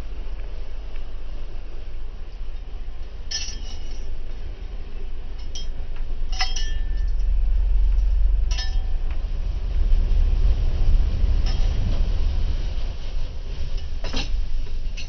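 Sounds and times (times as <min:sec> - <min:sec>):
vehicle rumbling on dirt track: 0:04.5 - 0:15.0.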